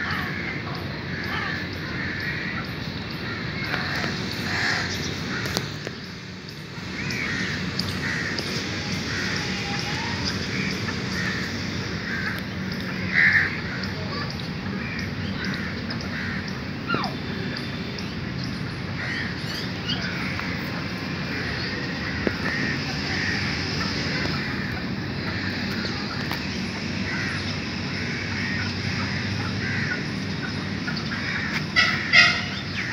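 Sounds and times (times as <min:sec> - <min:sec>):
birds calling: 0:00.0 - 0:32.9
steady background noise: 0:00.0 - 0:32.9
faint bird calls: 0:06.8 - 0:18.2.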